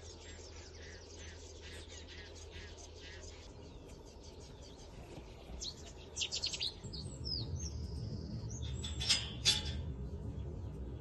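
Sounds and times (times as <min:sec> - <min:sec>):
small birds singing: 0:00.0 - 0:11.0
low rumble: 0:03.3 - 0:11.0.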